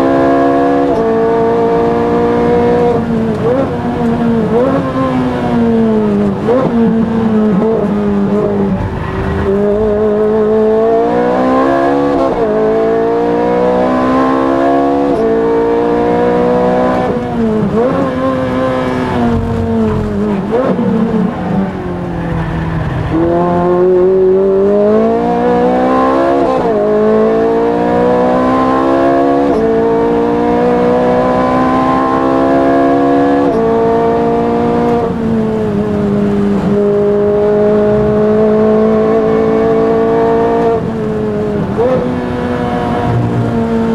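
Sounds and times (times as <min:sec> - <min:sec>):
race car engine revving: 0:00.0 - 0:43.9.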